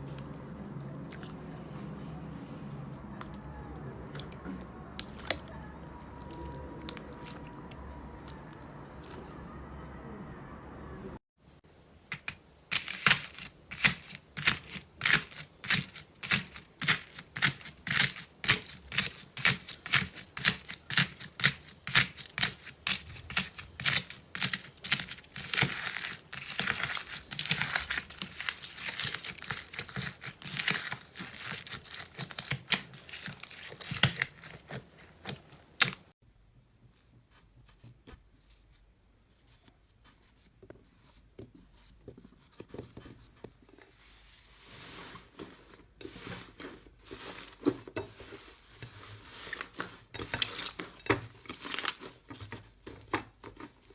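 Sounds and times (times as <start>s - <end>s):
faint handling sounds: 11.9s - 53.9s
slime crackling and popping: 12.1s - 36.1s.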